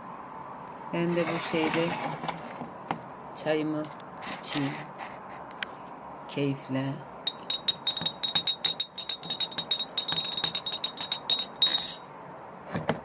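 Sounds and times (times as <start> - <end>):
teaspoon clinking against glass: 7.3 - 12.1.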